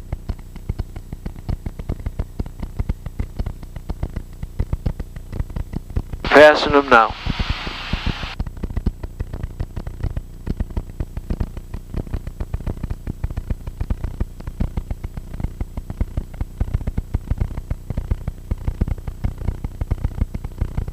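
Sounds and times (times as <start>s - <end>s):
aircraft engine running: 6.3s - 8.4s.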